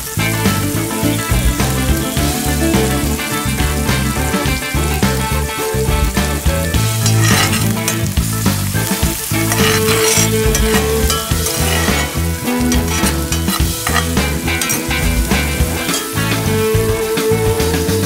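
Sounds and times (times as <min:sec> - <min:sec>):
background music with bass line: 0:00.0 - 0:18.0
vegetables sizzling in oil: 0:00.0 - 0:18.0
metal spoon scraping pan: 0:06.8 - 0:08.3, 0:09.2 - 0:16.5.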